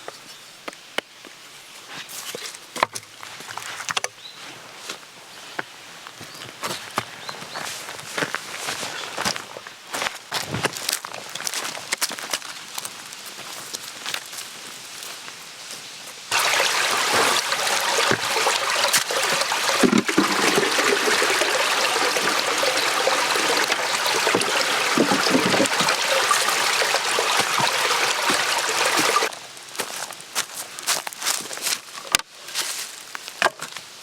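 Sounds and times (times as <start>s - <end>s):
water pouring: 16.3s - 29.3s.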